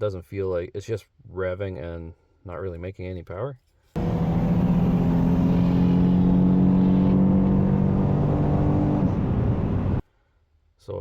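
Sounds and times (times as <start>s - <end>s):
car engine revving at high rpm: 4.0s - 10.0s.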